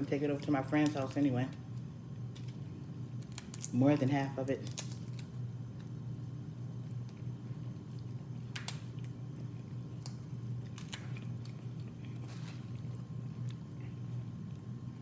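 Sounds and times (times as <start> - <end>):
steady low hum: 0.0 - 15.0
chewing and biting food: 4.6 - 15.0.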